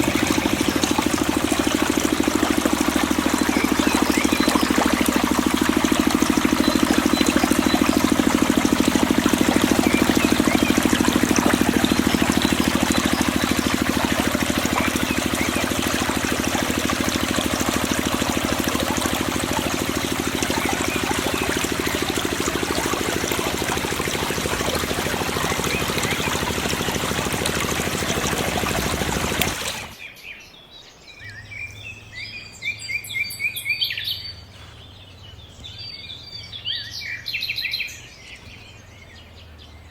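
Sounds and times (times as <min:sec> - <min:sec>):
water pouring and splashing: 0:00.0 - 0:30.0
water pump running: 0:00.0 - 0:30.0
birds chirping: 0:00.0 - 0:39.9.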